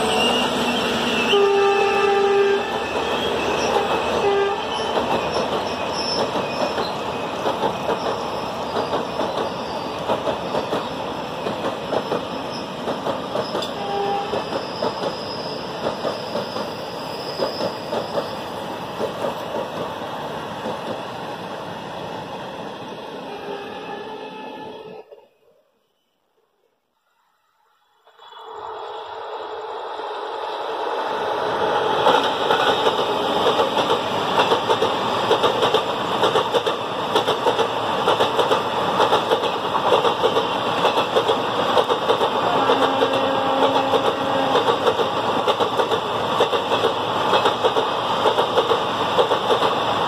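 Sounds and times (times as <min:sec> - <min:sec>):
high wheel squeal: 0:00.0 - 0:02.0, 0:02.7 - 0:07.4, 0:14.4 - 0:18.4
train wheels clattering: 0:04.8 - 0:18.4, 0:32.0 - 0:49.8
horn-like tones: 0:23.3 - 0:25.0, 0:42.5 - 0:44.6.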